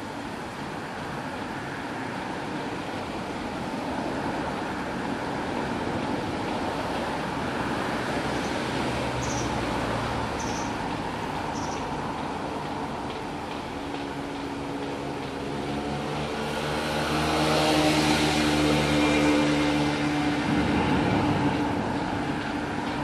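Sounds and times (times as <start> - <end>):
distant traffic rumble: 0.0 - 23.0.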